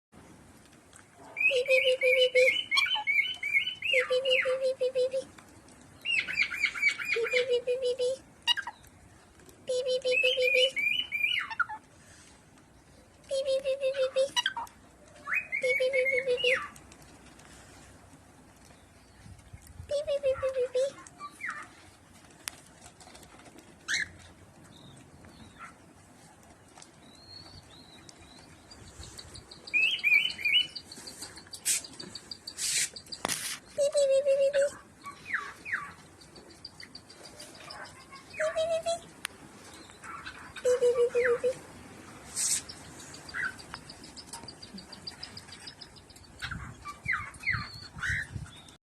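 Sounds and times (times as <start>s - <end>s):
rustling: 16.5s - 38.3s, 39.0s - 44.7s.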